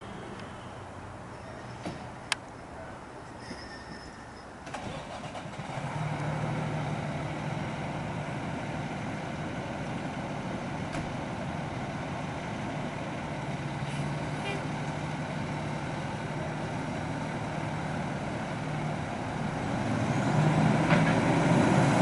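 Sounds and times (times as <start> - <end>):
diesel engine starting and idling: 4.6 - 22.0.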